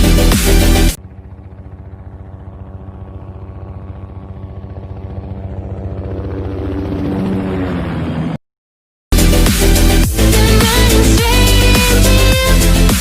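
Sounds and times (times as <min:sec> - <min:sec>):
electronic dance music: 0:00.0 - 0:01.0, 0:09.1 - 0:13.0
helicopter rotor chop: 0:00.0 - 0:08.4, 0:09.2 - 0:13.0.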